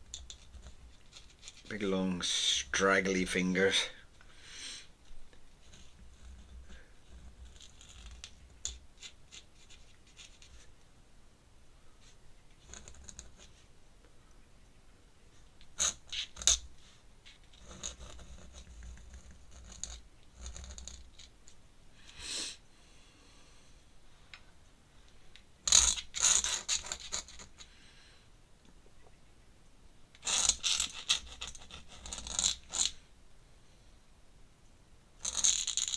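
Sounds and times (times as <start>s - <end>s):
pen scratching on paper: 0.3s - 1.7s, 5.6s - 10.7s, 17.6s - 21.1s, 30.2s - 32.8s.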